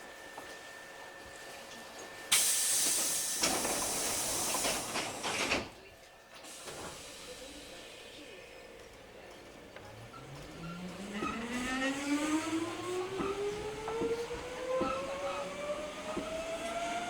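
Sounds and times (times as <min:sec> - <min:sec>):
compressed air hiss: 0:02.3 - 0:05.3.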